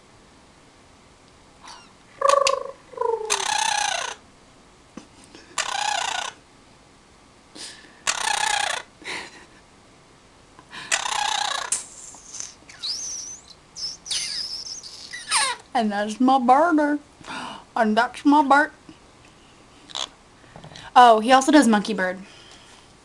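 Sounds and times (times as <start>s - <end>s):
parrot squawking: 1.6s - 4.2s, 5.6s - 6.4s, 8.1s - 8.9s, 10.9s - 15.6s, 19.9s - 20.2s.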